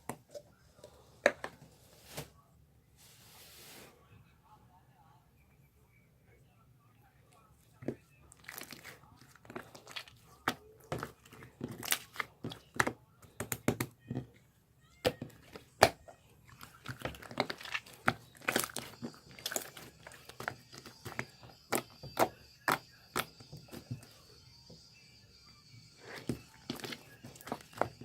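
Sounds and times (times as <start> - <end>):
faint high-pitched tone: 18.7 - 28.0.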